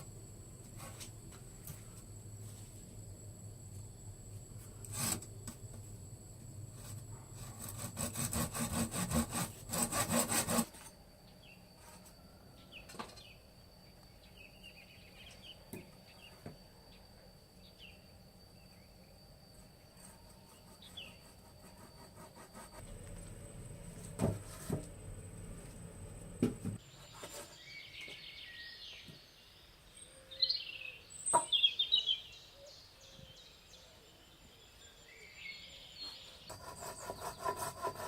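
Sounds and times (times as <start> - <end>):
high insect drone: 0.0 - 26.8
saw cutting wood: 7.4 - 10.8, 36.5 - 38.0
faint bird chirps: 26.8 - 37.4.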